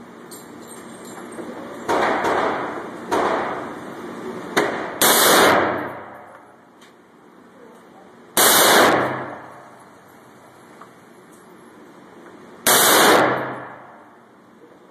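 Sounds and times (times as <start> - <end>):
gunshots with echo: 4.6 - 6.3, 8.4 - 9.7, 12.7 - 14.1.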